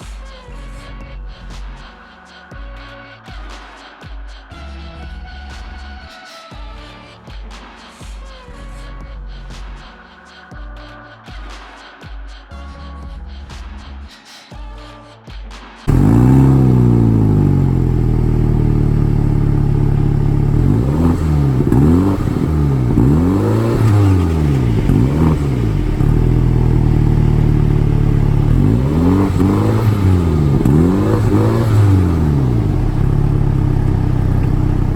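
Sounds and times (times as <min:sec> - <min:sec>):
car engine starting and revving: 0:15.9 - 0:34.9.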